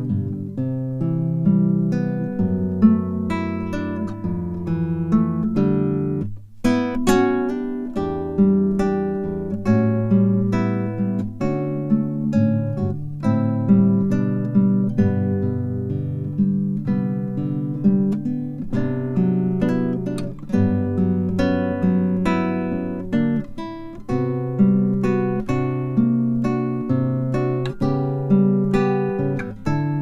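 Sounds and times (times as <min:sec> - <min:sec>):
acoustic guitar chords: 0:00.0 - 0:30.0.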